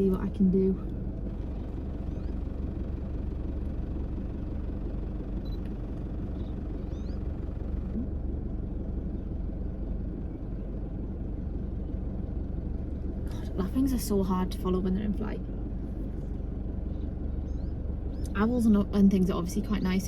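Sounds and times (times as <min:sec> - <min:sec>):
low vehicle rumble: 0:00.0 - 0:20.0
faint high bird calls: 0:01.6 - 0:02.5, 0:06.2 - 0:07.4, 0:16.9 - 0:18.3.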